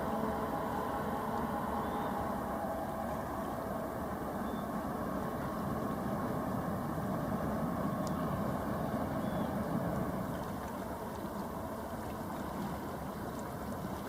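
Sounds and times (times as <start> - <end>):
ship engine rumble: 0.0 - 14.0.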